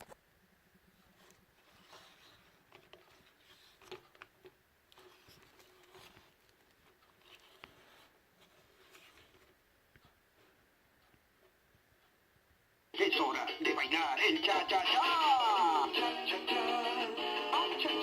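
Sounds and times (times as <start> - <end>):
soft rustles: 0.9 - 11.6.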